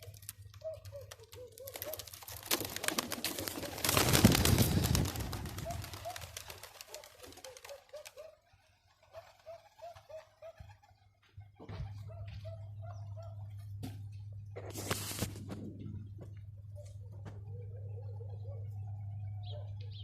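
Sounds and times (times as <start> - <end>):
pigeons cooing: 0.0 - 13.6, 15.5 - 20.0.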